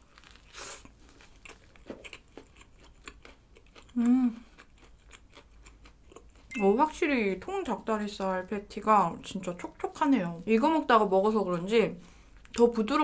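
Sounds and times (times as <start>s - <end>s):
crunchy bite into burger: 0.0s - 4.0s
wet chewing: 0.1s - 6.5s
person humming mm: 3.9s - 4.5s.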